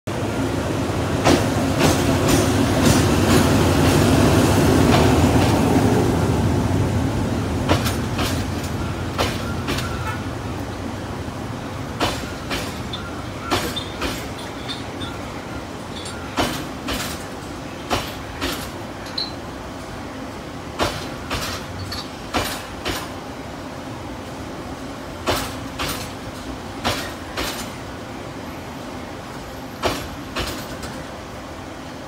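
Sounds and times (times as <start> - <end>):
train rumble: 0.1 - 32.0
wheels clacking over rail joints: 1.2 - 5.8, 7.6 - 10.8, 11.9 - 19.4, 20.8 - 23.2, 25.2 - 27.8, 29.7 - 31.1.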